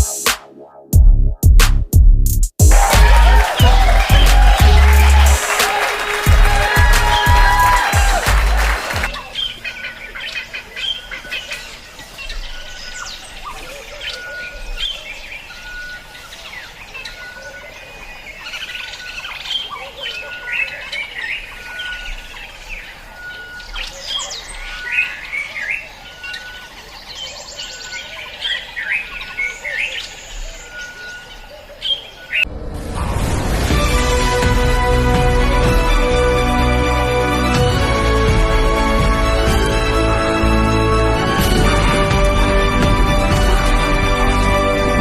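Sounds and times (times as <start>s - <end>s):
birds chirping: 2.6s - 32.5s.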